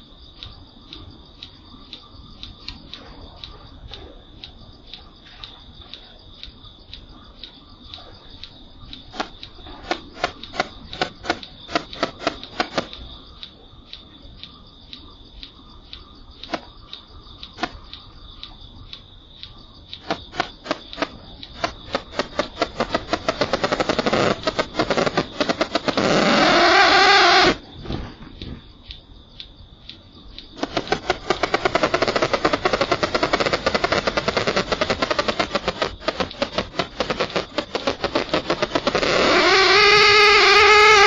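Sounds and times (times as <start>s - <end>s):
sharp clicks: 0.0s - 27.7s, 28.4s - 41.0s
steady high whine: 9.0s - 13.1s, 20.0s - 27.7s.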